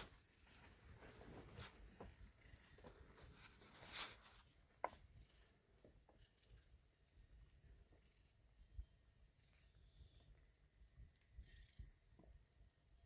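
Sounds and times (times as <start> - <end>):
soft handling rustles: 0.0 - 6.6.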